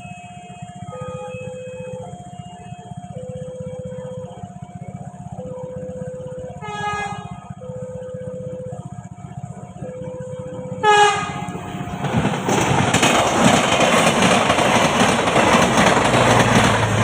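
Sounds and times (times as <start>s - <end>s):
two-pitch warning tone: 0.0s - 14.4s
low engine hum: 0.0s - 17.0s
train passing by: 0.0s - 17.0s
train horn blast: 6.6s - 7.6s, 10.8s - 11.8s.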